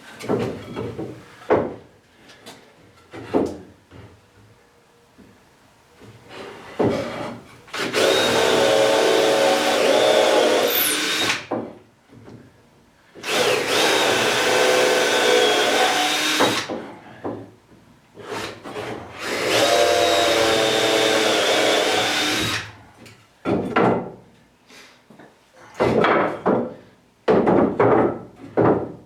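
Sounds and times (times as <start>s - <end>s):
power drill driving screws: 7.7s - 11.5s, 13.2s - 16.7s, 19.2s - 22.7s.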